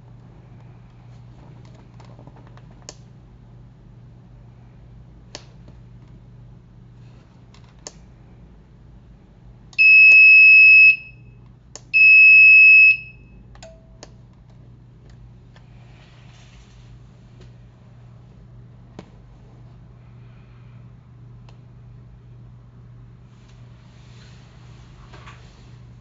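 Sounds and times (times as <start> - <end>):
high buzzer beeps: 9.8 - 11.3, 12.0 - 13.3.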